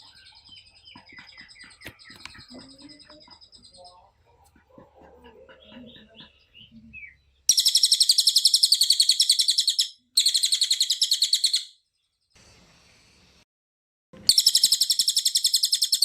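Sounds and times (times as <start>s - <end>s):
songbird high-pitched trills: 6.6s - 11.8s, 14.3s - 16.0s.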